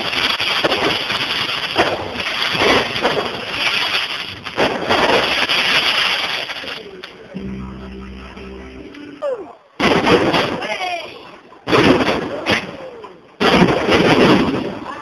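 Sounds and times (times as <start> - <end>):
fireworks bursting and crackling: 0.0 - 15.0
steady low tone: 7.3 - 9.7.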